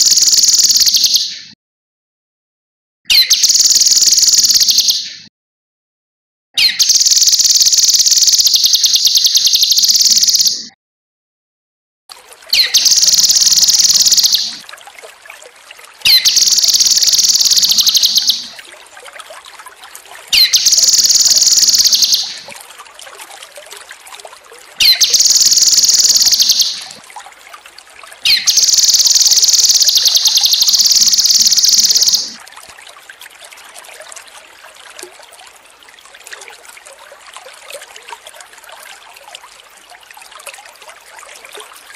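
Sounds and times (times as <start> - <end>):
faint water trickle: 0.0 - 1.2, 3.4 - 4.9, 6.6 - 10.5, 12.1 - 41.9
bird trilling song: 0.0 - 1.5, 3.1 - 5.2, 6.6 - 10.7, 12.5 - 14.6, 16.1 - 18.6, 20.3 - 22.5, 24.8 - 27.0, 28.2 - 32.4.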